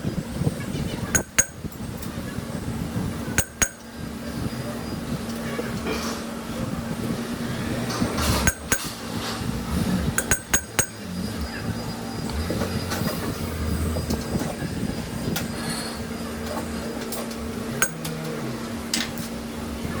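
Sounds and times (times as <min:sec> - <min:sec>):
machine hum: 0:00.0 - 0:20.0
sharp metal clinks: 0:10.2 - 0:11.0.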